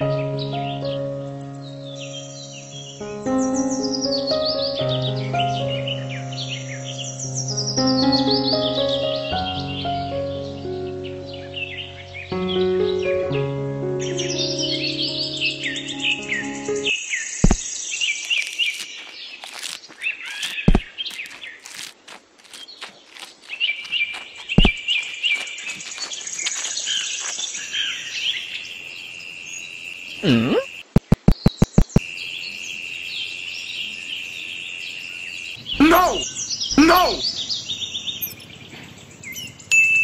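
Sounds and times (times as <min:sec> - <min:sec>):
birds chirping: 0:14.0 - 0:39.9
sharp clicks: 0:30.9 - 0:32.0.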